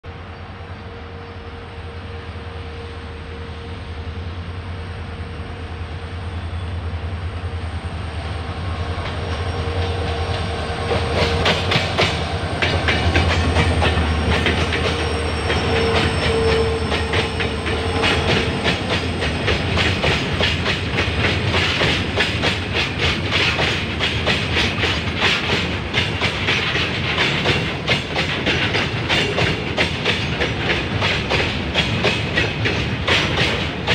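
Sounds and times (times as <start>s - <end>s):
diesel locomotive engines rumbling: 0.0s - 33.9s
train wheels clattering over rail joints: 9.0s - 33.9s.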